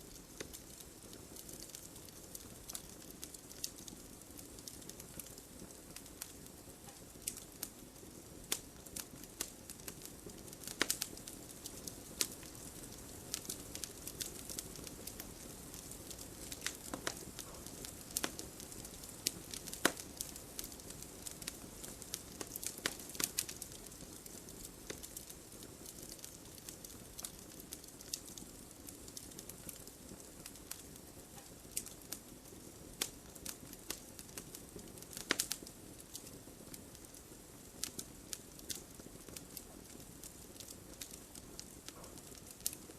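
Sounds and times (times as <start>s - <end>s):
campfire crackling and popping: 0.0s - 42.9s
flame rushing: 8.2s - 28.4s.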